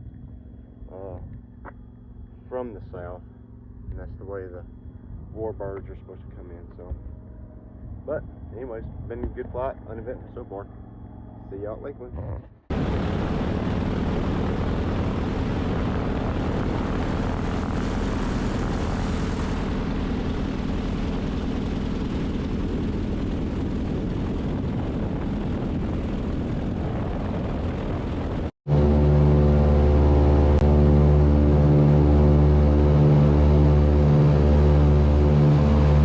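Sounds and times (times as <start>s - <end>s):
propeller engines droning: 0.0s - 36.0s
pulsing background music: 28.7s - 36.0s.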